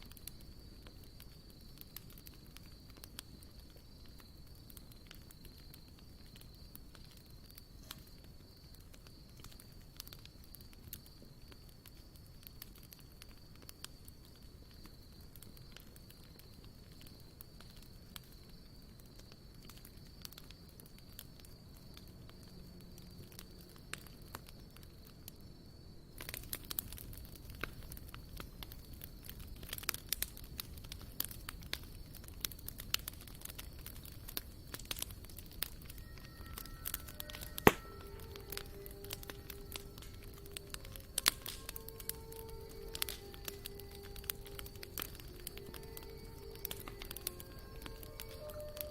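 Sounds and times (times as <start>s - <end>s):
campfire crackling: 0.0s - 48.9s
soft music with sustained notes: 35.7s - 48.9s
sharp pop from fire: 36.8s - 38.2s.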